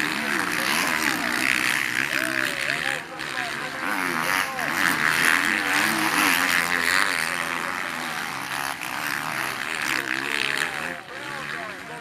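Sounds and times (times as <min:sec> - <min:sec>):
motocross bike engines racing: 0:00.0 - 0:12.0.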